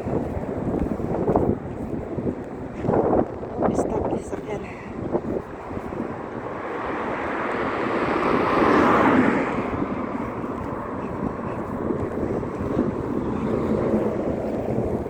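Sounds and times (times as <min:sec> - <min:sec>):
motor vehicle driving past: 0:05.9 - 0:15.0.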